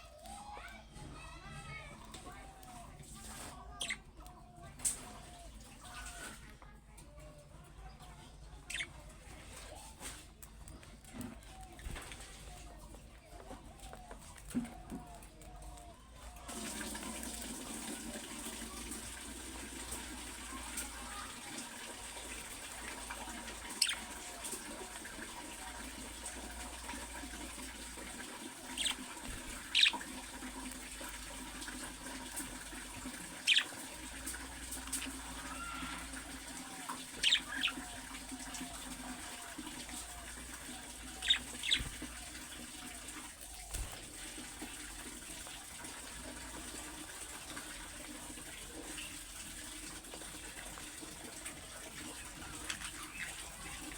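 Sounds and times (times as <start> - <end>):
sharp loud chirp calls: 23.7 - 24.2, 28.6 - 29.0, 29.6 - 30.1, 33.4 - 33.8, 37.2 - 37.8, 41.1 - 42.0
budgerigars chattering: 23.7 - 24.4, 28.6 - 30.1, 33.4 - 33.8, 37.1 - 37.9, 41.0 - 42.2.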